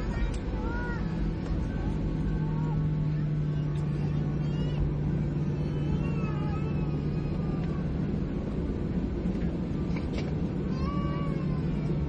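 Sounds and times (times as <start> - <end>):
airplane cabin drone: 0.0 - 12.0.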